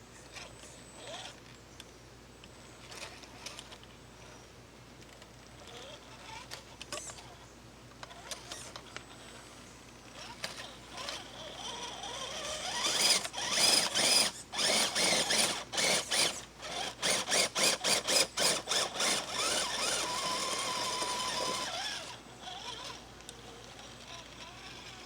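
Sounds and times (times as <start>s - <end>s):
electric motor whining: 10.2s - 25.0s.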